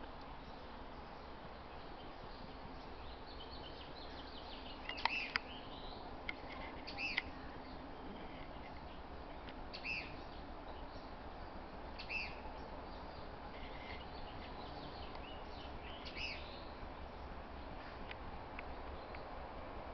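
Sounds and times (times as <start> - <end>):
faint background noise: 0.0 - 19.9
small bird chirping: 0.4 - 11.1, 12.0 - 16.8.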